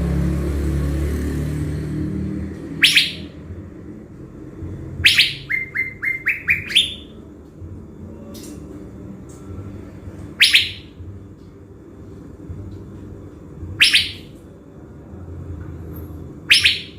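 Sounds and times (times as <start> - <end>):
high downward sweeping bird call: 2.8 - 3.3, 5.0 - 7.1, 10.4 - 10.9, 13.8 - 14.3
bird calling: 5.0 - 7.1, 10.4 - 10.9, 13.8 - 14.3.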